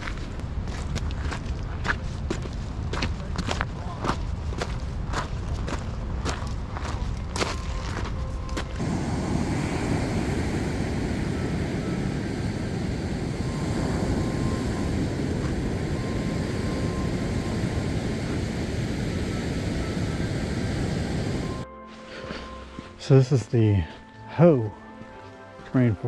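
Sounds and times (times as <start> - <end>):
steady low rumbling: 8.8 - 21.6.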